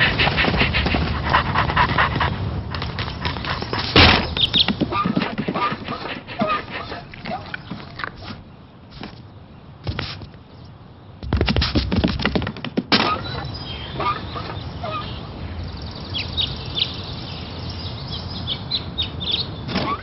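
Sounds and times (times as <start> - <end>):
birds chirping: 0.0 - 20.0
clatter of clicks and knocks: 11.2 - 13.1.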